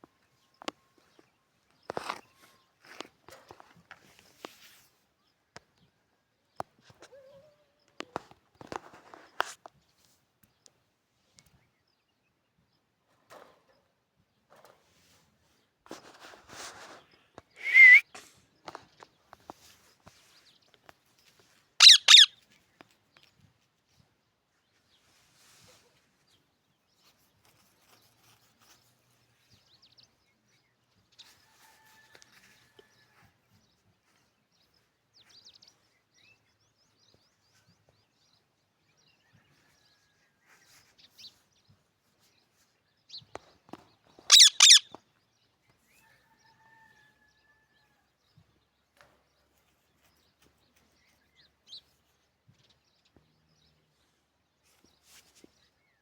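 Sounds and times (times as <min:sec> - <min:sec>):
parrots chirping and whistling: 0:17.6 - 0:18.0, 0:21.8 - 0:22.3, 0:44.3 - 0:44.9
parrot harsh screech: 0:21.8 - 0:22.3, 0:44.3 - 0:44.8.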